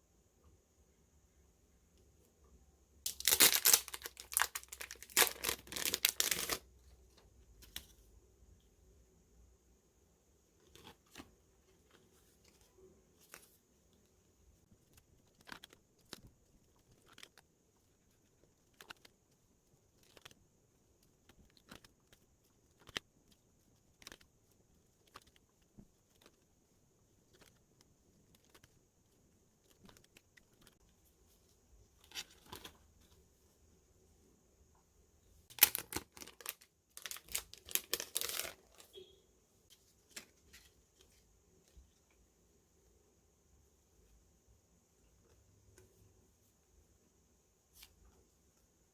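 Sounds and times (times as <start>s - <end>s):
plastic wrap crinkling and tearing: 3.1s - 6.6s, 35.5s - 38.9s.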